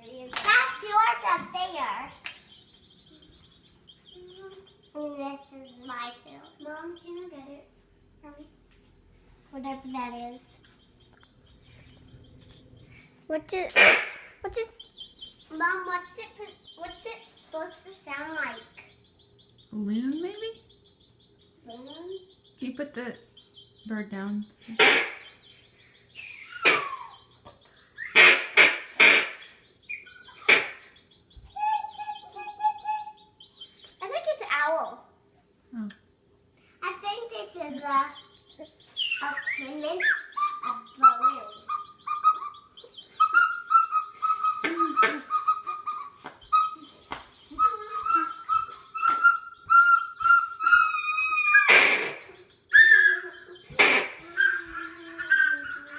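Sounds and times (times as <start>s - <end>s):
toy bird squawking calls: 0.0s - 7.4s, 13.5s - 22.6s, 24.6s - 35.0s, 37.6s - 55.9s
faint high twittering: 0.0s - 7.7s, 9.5s - 35.2s, 36.7s - 55.9s.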